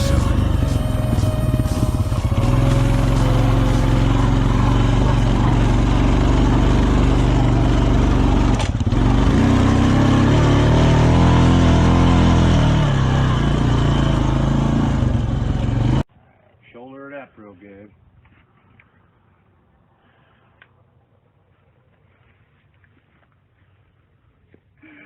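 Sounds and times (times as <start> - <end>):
vehicle engine running: 0.0 - 16.1.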